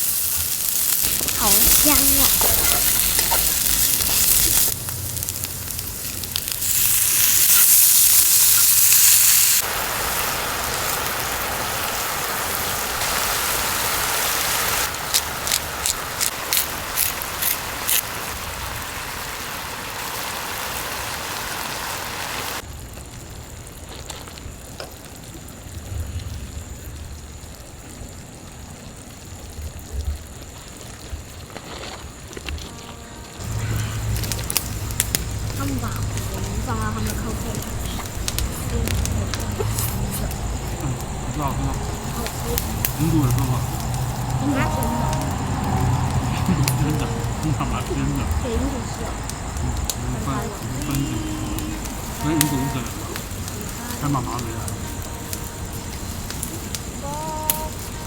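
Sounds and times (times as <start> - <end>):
food sizzling in a pan: 0.0 - 58.0
faint high tone: 44.4 - 45.9.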